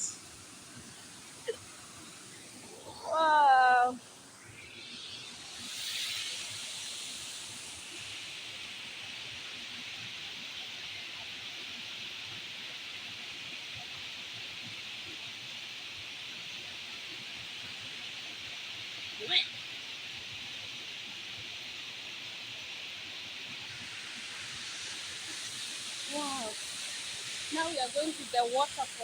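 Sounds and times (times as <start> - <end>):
waterfall rushing: 23.4 - 29.0.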